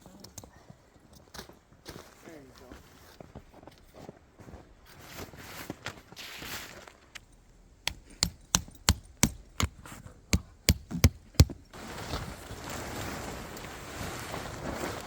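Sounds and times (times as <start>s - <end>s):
sharp strikes on wood: 7.8s - 11.7s.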